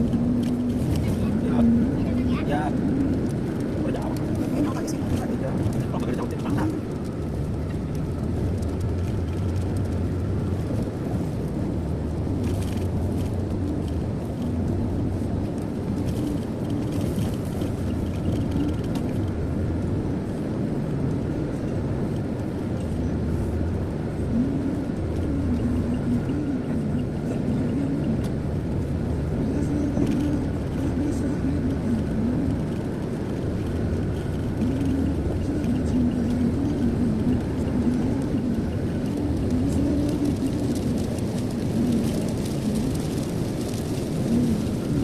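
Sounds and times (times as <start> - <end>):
car driving at speed: 0.0 - 45.0.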